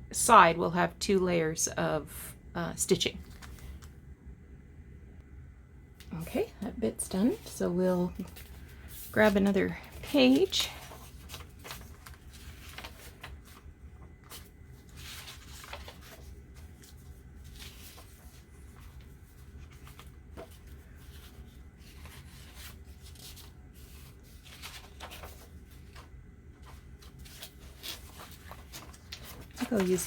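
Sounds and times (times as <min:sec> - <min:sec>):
paper rustling: 0:03.2 - 0:04.0, 0:07.1 - 0:30.0.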